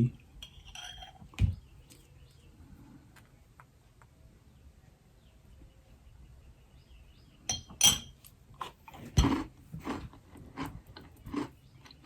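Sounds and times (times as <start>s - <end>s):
spoon clinking against jar: 7.5s - 8.2s
crunchy wafer chewing: 8.5s - 12.0s.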